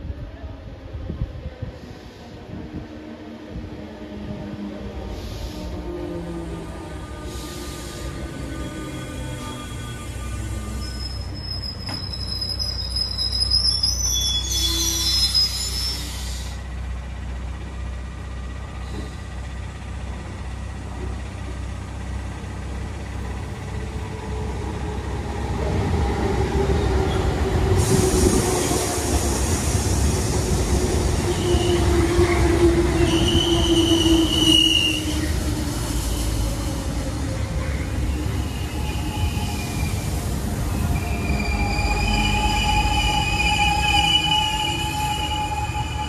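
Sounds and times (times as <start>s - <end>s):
train wheel and motor noise: 0.0s - 46.0s
train wheel squeal: 7.0s - 16.7s, 27.0s - 46.0s
train brake squeal: 7.2s - 16.6s, 31.2s - 36.5s, 37.6s - 46.0s.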